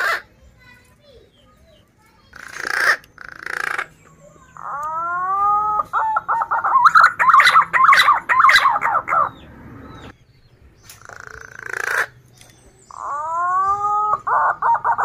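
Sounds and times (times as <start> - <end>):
pigeon whistled song: 4.1 - 10.1.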